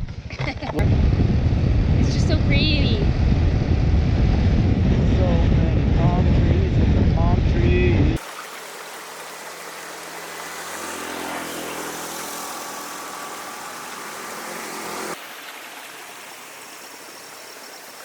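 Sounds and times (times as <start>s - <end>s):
road and wind noise: 0.0s - 8.3s, 9.2s - 15.2s
vehicle engine hum: 0.7s - 8.2s, 8.9s - 18.0s.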